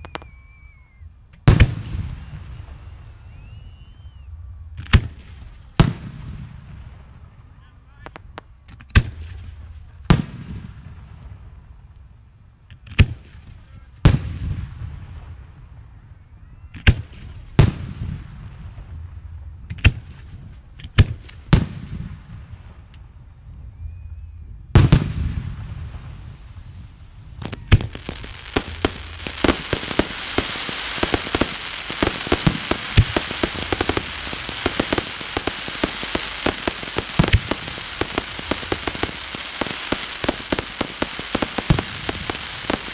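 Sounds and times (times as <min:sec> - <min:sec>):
firework crackle: 0:00.0 - 0:12.0, 0:24.7 - 0:42.9
firework shells bursting: 0:27.3 - 0:42.9.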